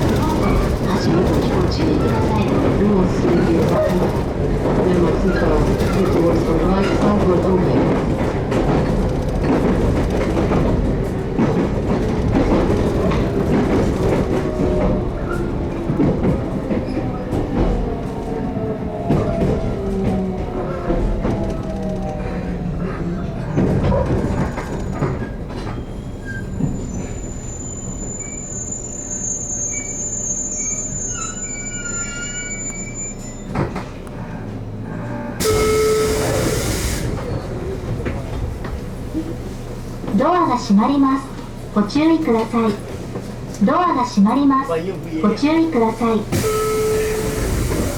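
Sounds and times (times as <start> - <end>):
clacks over rail joints: 0.0 - 25.9
train wheels rumbling on track: 0.0 - 47.9
electric train humming: 33.7 - 44.2, 44.9 - 47.9
loud air hiss: 35.4 - 37.3, 46.4 - 47.9.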